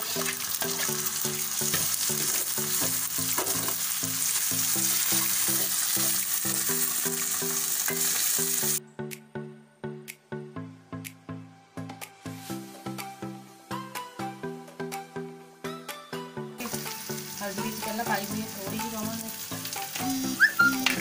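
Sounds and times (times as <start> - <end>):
tomatoes sizzling in hot oil: 0.0 - 8.8, 16.6 - 21.0
background music with repeating melody: 0.0 - 21.0.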